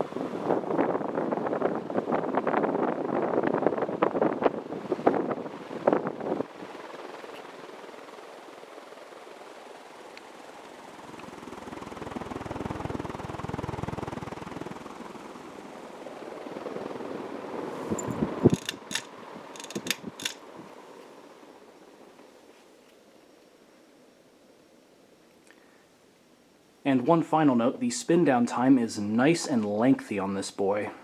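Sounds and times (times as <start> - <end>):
sharp clicks: 18.0 - 20.4.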